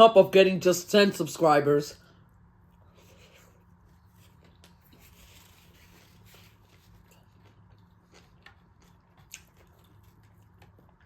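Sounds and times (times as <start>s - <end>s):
low steady hum: 0.0s - 11.0s
eating noises: 4.1s - 11.0s.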